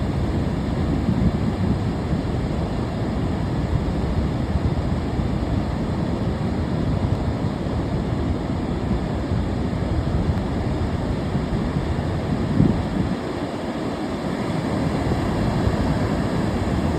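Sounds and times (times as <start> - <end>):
ocean surf washing: 0.0 - 16.9.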